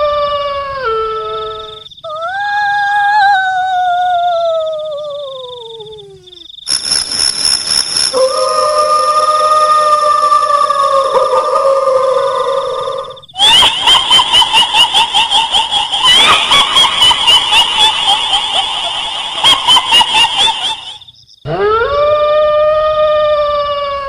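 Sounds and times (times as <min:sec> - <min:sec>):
rapid shrill cackling pulses: 0:06.7 - 0:21.1
long rising howl: 0:08.1 - 0:13.2
high wail: 0:08.1 - 0:24.0.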